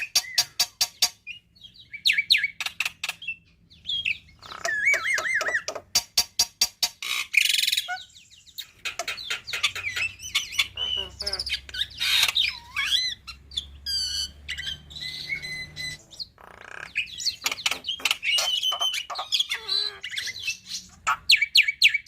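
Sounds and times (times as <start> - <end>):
bird singing with whistles: 1.3 - 5.7, 9.8 - 16.2, 16.9 - 22.0.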